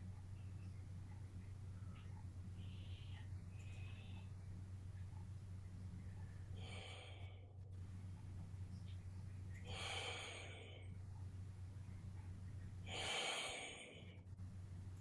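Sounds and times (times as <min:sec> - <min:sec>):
steady low hum: 0:00.0 - 0:15.0
person breathing slowly: 0:02.6 - 0:04.4, 0:06.2 - 0:07.6, 0:09.6 - 0:11.0, 0:12.8 - 0:14.3.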